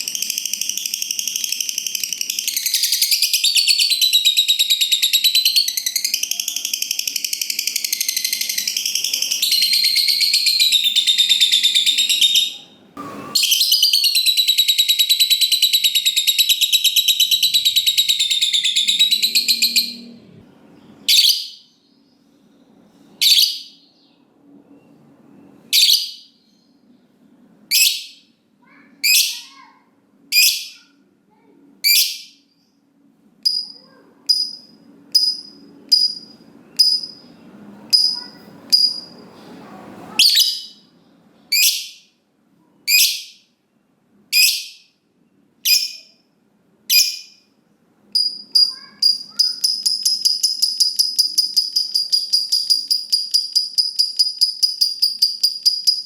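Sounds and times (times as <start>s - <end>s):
fast chattering bird trill: 0.0s - 12.7s, 13.3s - 20.1s, 38.0s - 39.2s, 48.2s - 56.0s
shrill lovebird calls: 0.0s - 20.2s, 40.1s - 40.9s, 46.9s - 47.5s, 48.2s - 56.0s.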